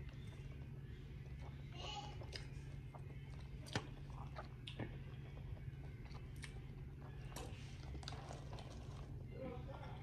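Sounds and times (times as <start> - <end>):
chewing and biting seafood: 2.2 - 9.2.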